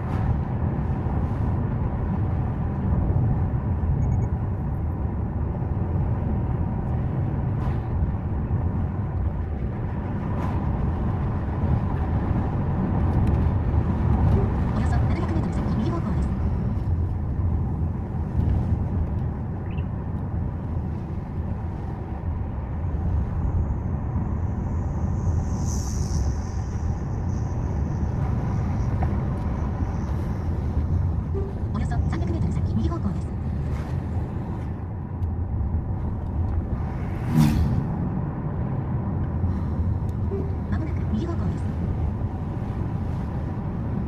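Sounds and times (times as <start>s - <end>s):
car driving rumble: 0.0s - 44.0s.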